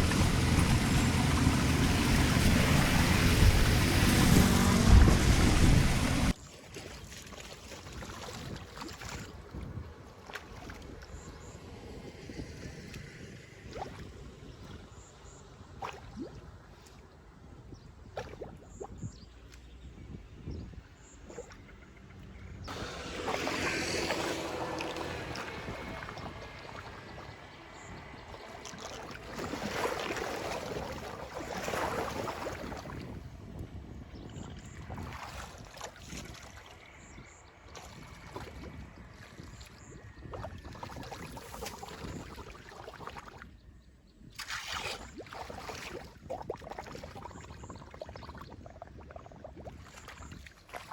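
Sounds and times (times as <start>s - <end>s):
low rumble: 0.0s - 6.4s
small water splashes: 0.0s - 50.9s
water gurgling and trickling: 0.0s - 50.9s.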